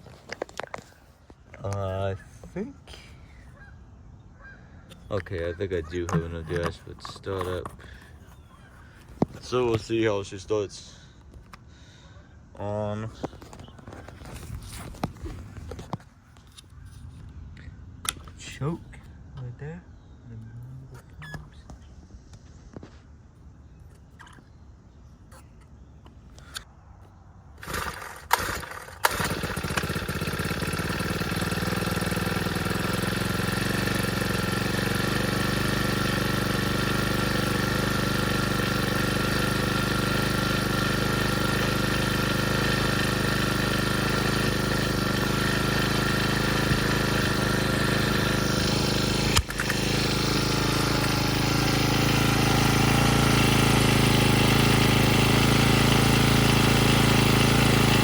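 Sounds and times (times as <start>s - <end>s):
recoil starter pulls: 4.9s - 11.7s, 27.6s - 58.0s
trimmer engine running: 5.1s - 11.1s, 27.6s - 58.0s.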